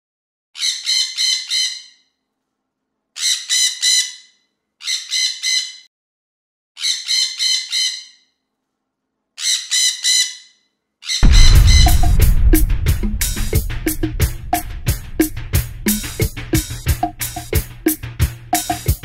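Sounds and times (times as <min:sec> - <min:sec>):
harsh bird squawks: 0:00.6 - 0:02.0, 0:03.2 - 0:05.8, 0:06.8 - 0:08.3, 0:09.4 - 0:11.2.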